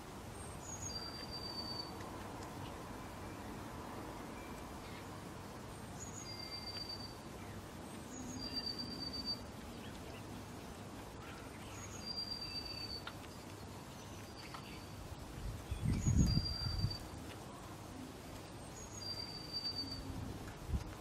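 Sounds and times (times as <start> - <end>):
faint background noise: 0.0 - 21.0
songbird high whistle: 6.1 - 7.2, 8.3 - 9.4, 11.8 - 13.1, 16.0 - 17.0, 18.9 - 20.1.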